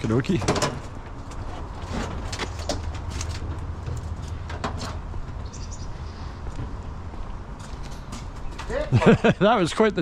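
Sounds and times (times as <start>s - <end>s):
bird chirping: 5.4s - 6.4s.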